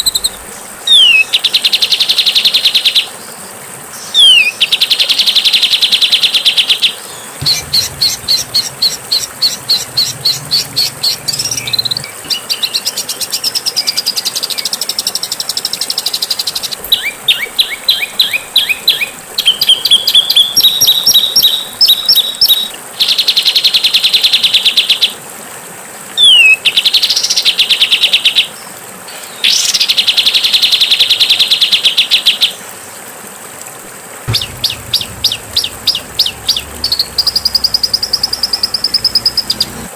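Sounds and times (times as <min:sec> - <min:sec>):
whistled bird chirps: 0:00.0 - 0:01.3, 0:04.2 - 0:04.6, 0:16.6 - 0:22.8
bird rattling trills: 0:07.4 - 0:12.7, 0:34.3 - 0:39.9.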